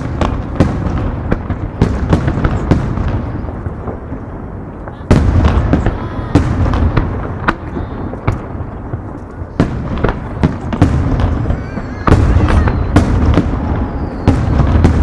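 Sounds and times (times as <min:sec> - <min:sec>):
fireworks bangs and crackles: 0:00.0 - 0:15.0
whistles of rising shells: 0:11.4 - 0:14.8.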